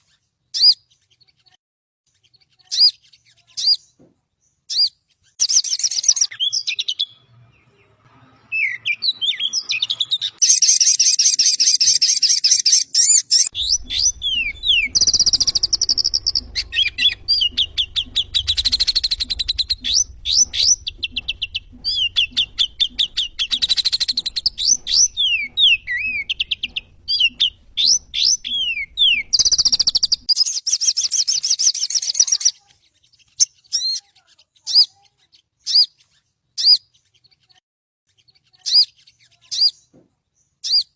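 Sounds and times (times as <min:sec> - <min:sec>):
bird chirping and trilling: 0:00.0 - 0:40.9
faint low hum: 0:13.5 - 0:30.3.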